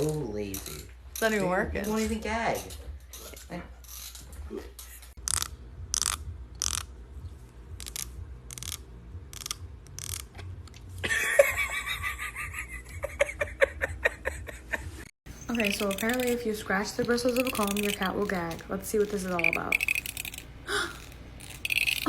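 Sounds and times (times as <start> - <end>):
fingernail scratching comb bristles: 0.0 - 6.9, 7.7 - 10.4, 15.4 - 22.0.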